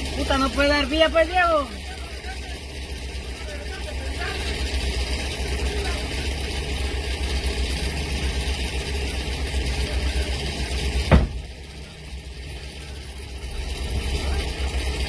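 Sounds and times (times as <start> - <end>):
vehicle engine running: 0.0 - 15.0
sharp knock: 11.1 - 11.4.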